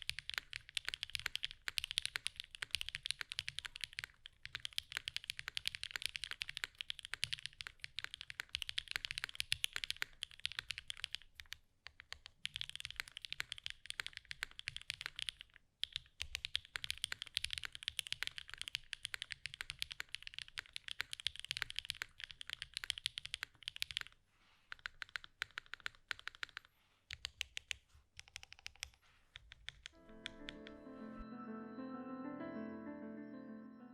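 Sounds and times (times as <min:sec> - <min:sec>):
fast mechanical keyboard typing: 0:00.0 - 0:30.7
piano music: 0:30.0 - 0:33.9.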